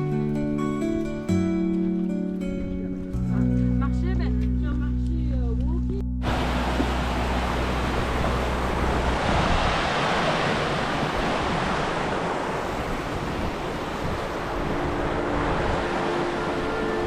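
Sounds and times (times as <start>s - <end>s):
low held music tones: 0.0s - 9.8s, 14.4s - 17.0s.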